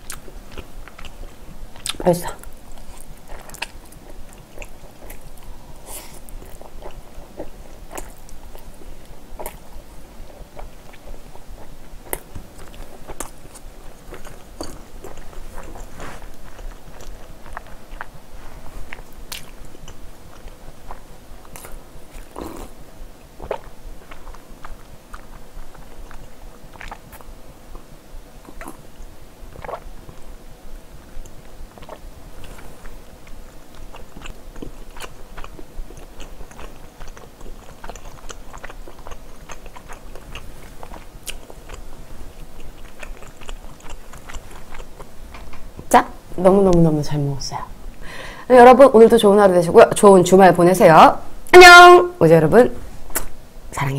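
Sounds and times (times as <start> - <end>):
person chewing food: 0.0 - 30.4, 31.0 - 45.9
wet mouth clicks: 53.1 - 53.3.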